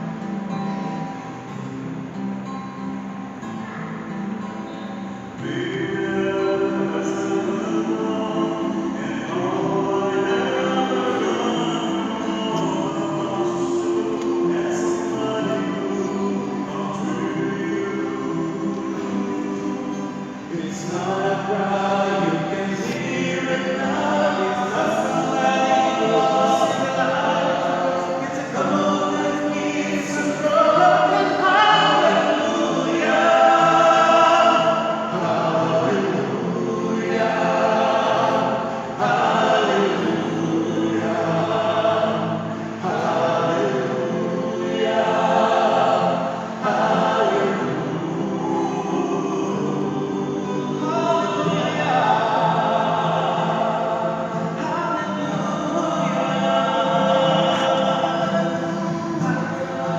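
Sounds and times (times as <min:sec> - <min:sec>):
choir singing: 0:03.4 - 0:59.9.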